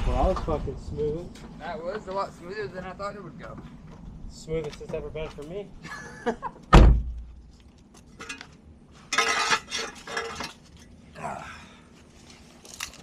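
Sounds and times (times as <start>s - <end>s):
heavy thud: 6.7s - 7.3s.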